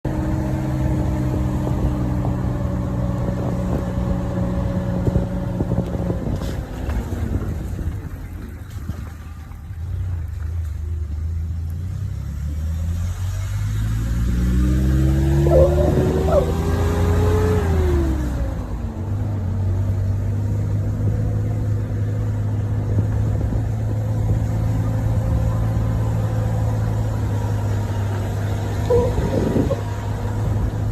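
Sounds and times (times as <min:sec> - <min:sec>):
car engine revving: 0:11.9 - 0:18.9, 0:21.0 - 0:30.9.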